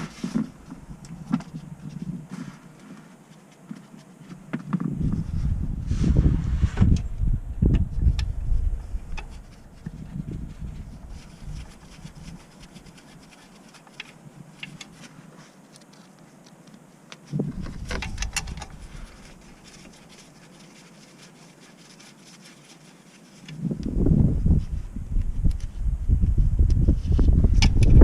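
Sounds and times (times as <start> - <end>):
light clicks and scraping: 6.7 - 23.9.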